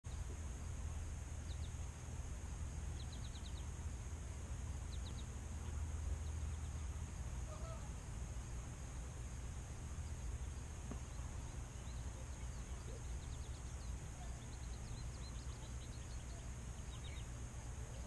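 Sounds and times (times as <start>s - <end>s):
small birds chirping: 0.0s - 18.0s
steady high hiss: 0.0s - 18.0s
steady low rumble: 0.0s - 18.0s
low bird call: 4.9s - 8.0s.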